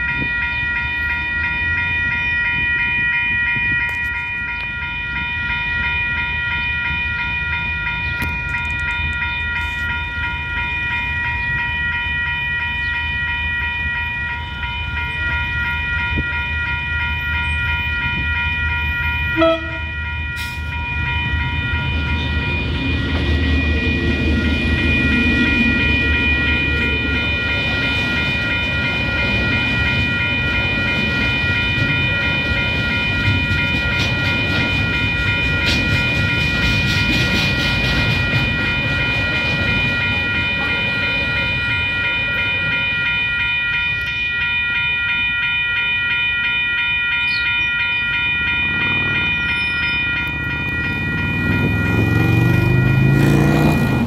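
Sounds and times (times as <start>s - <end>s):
diesel locomotive engine: 0.0s - 54.0s
level crossing alarm bells: 0.0s - 54.0s.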